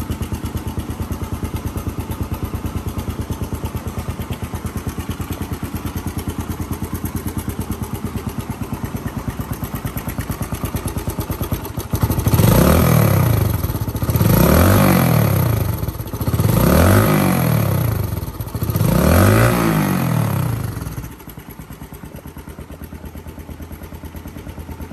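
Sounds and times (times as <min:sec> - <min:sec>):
motorcycle engine idling: 0:00.0 - 0:24.9
motorcycle engine revving: 0:00.0 - 0:24.9.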